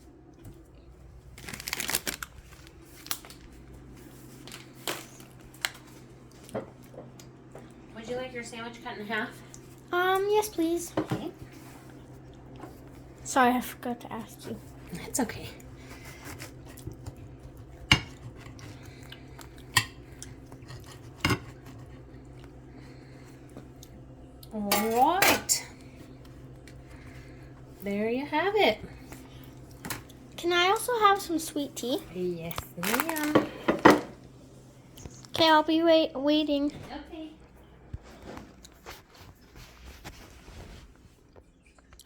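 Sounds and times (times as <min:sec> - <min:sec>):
packaging crackling: 0:01.2 - 0:03.8, 0:32.6 - 0:33.4.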